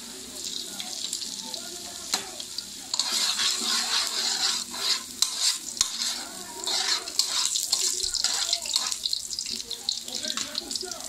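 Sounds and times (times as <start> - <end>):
food sizzling in hot oil: 0.0 - 11.0
utensil scraping a wok: 2.9 - 9.5.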